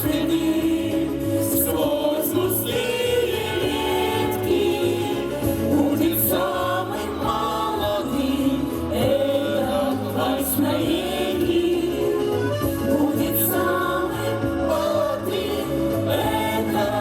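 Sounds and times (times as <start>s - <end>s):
group of voices singing: 0.0s - 17.0s
instrumental backing with bass line: 0.0s - 17.0s.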